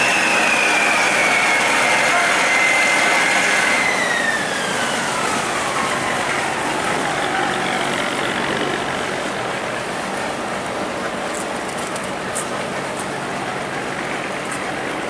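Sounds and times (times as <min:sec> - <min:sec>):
high whine sliding down: 0:00.0 - 0:09.1
diesel engine running: 0:03.8 - 0:15.0.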